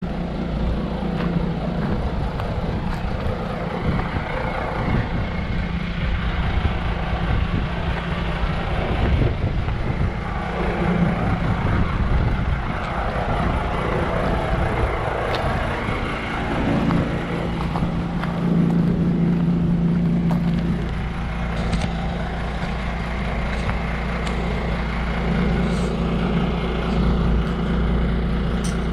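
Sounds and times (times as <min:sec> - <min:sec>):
vehicle engine running: 0:00.0 - 0:28.9.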